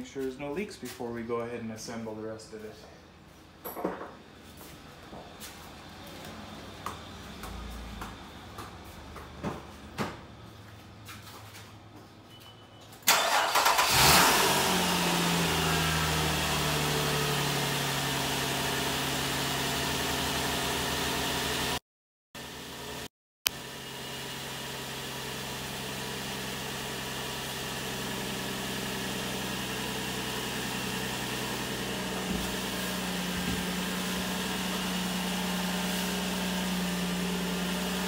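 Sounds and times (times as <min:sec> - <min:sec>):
car engine starting and idling: 0:13.0 - 0:21.7, 0:23.5 - 0:38.0.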